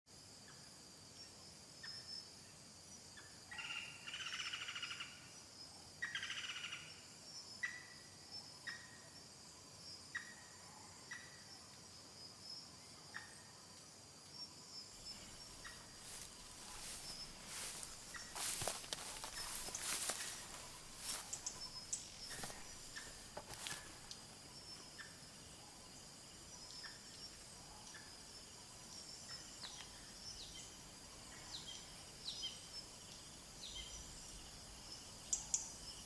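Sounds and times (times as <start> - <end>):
high insect drone: 0.1 - 36.0
bird chirping: 15.0 - 25.2.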